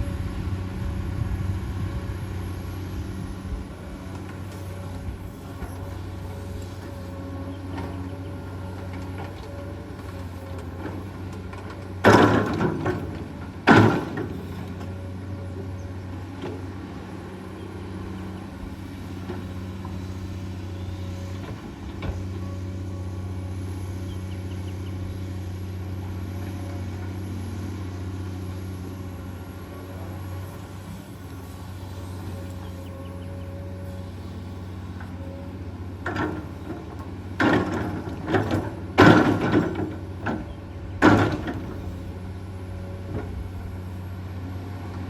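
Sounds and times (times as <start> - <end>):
excavator diesel engine running: 0.0 - 45.0.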